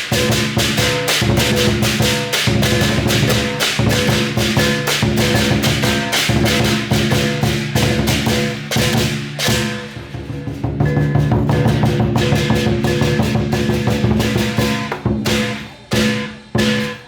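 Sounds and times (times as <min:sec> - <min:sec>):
clashing cymbals: 0:00.0 - 0:17.0
drum beaten rapidly: 0:00.0 - 0:17.0.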